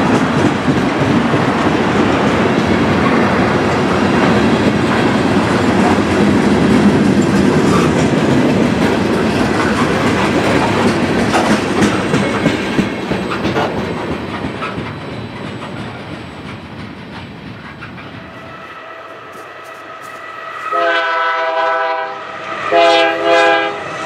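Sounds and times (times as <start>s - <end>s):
train wheels clicking over rail joints: 0.0s - 20.8s.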